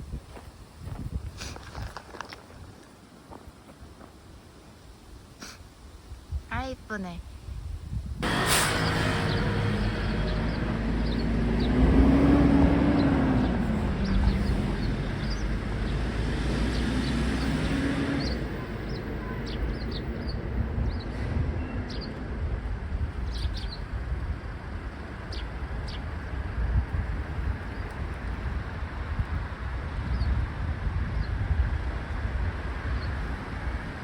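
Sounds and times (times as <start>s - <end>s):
low rumble: 7.8s - 16.3s
passing vehicle engine hum: 8.2s - 23.1s.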